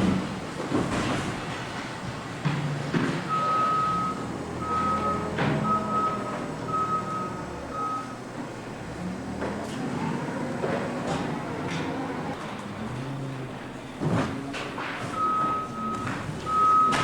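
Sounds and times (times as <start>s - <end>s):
machinery noise: 0.0s - 17.0s
backup alarm beeping: 3.3s - 8.3s, 15.0s - 17.0s.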